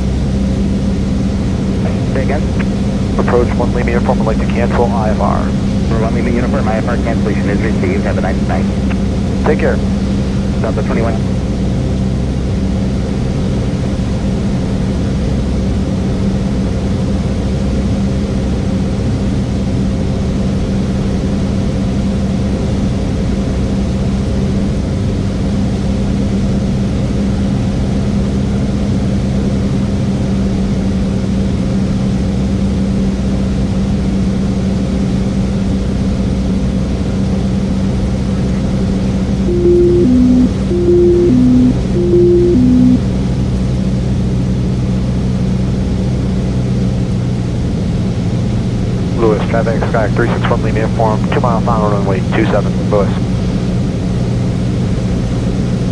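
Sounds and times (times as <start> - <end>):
light aircraft engine droning: 0.0 - 30.5, 45.6 - 53.9.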